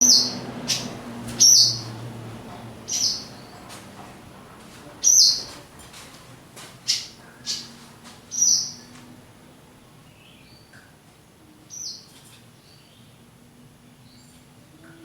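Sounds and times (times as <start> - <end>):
swallow alarm calls: 0.0 - 2.1, 2.8 - 3.6.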